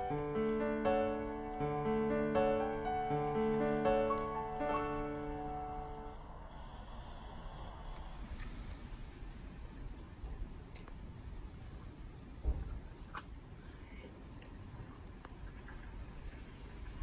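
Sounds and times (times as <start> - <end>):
low rumble: 5.1 - 11.6
small birds chirping: 7.9 - 15.0
thump: 12.4 - 12.8
falling whistled bird call: 12.4 - 14.4.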